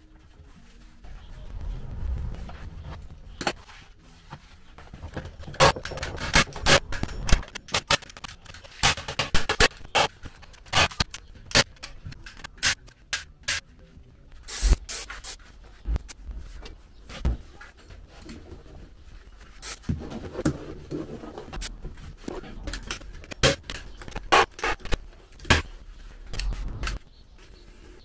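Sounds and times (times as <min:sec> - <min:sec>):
rubbing and scraping on wood: 0:16.4 - 0:28.0.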